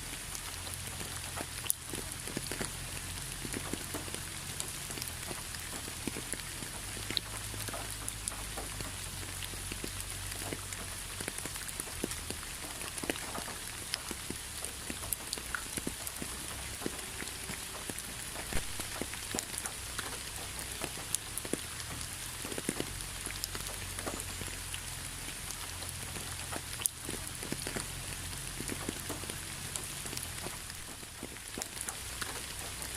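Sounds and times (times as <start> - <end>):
raindrops ticking: 0.0 - 32.9
steady rain falling: 0.0 - 32.9.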